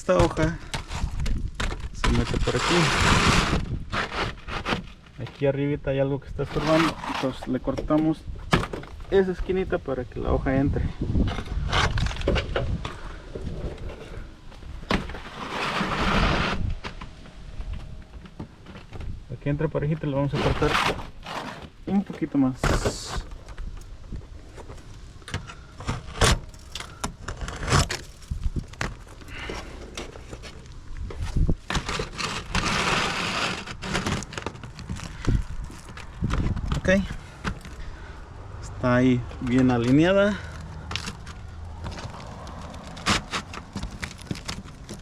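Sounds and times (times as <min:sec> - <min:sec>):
knocks and clicks of shingle: 0:00.1 - 0:02.2, 0:07.8 - 0:09.2, 0:24.5 - 0:30.7, 0:40.8 - 0:45.0
rasping scrape: 0:00.3 - 0:05.4, 0:06.4 - 0:07.7, 0:11.2 - 0:17.1, 0:19.8 - 0:37.9, 0:40.2 - 0:45.0.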